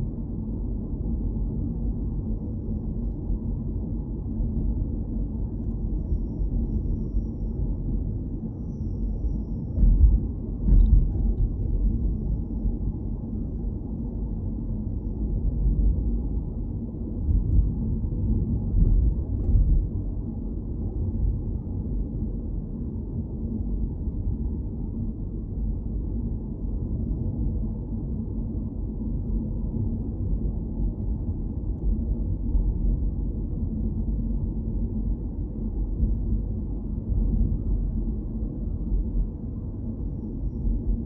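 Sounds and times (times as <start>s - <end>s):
road and engine rumble: 9.7s - 12.8s, 15.9s - 21.0s.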